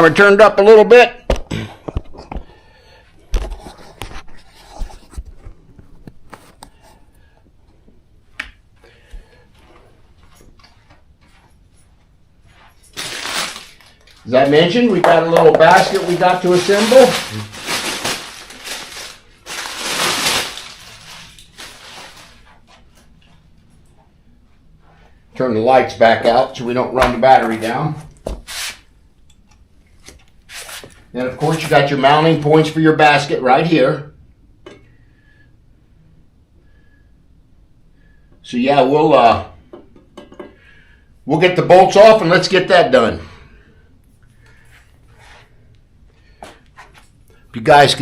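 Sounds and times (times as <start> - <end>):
packaging rustling and crinkling: 12.9 - 23.1.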